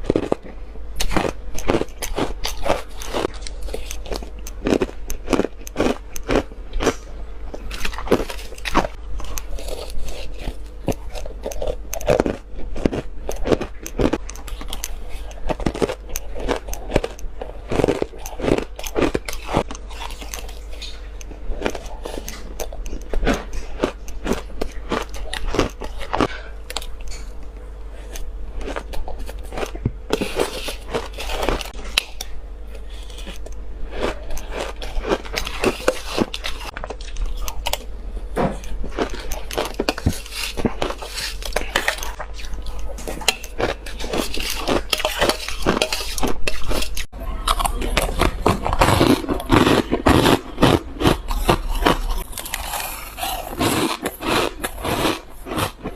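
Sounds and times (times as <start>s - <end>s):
crunching bites of shaved ice: 38.9s - 55.9s.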